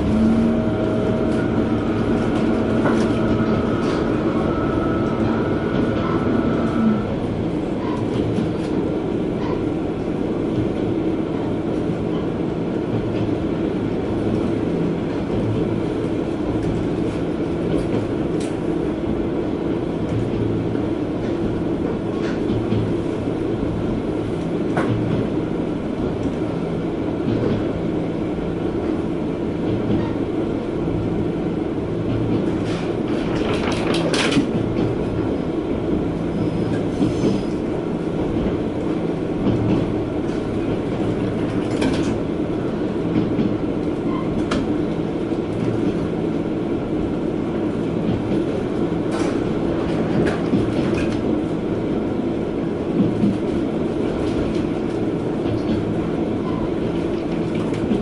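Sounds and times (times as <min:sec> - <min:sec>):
railcar rumble and engine drone: 0:00.0 - 0:58.0.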